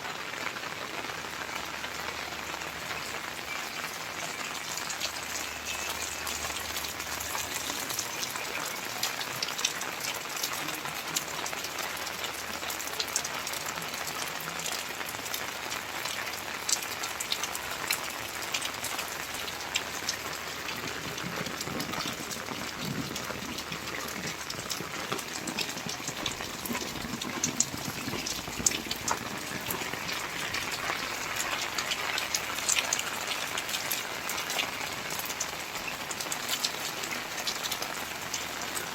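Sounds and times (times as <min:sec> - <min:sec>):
raindrop impacts: 0:00.0 - 0:38.9
steady rain hiss: 0:00.0 - 0:38.9.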